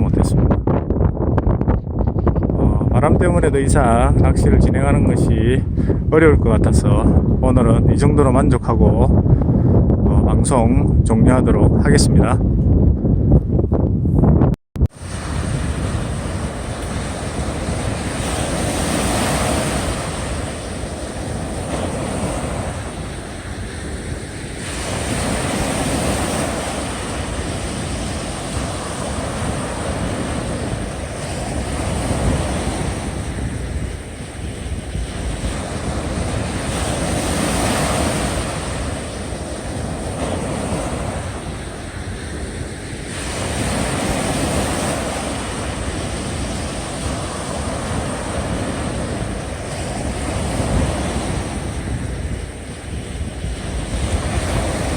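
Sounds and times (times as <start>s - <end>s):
wind buffeting microphone: 0.0s - 54.9s
sea swell washing against breakwater: 14.9s - 54.9s.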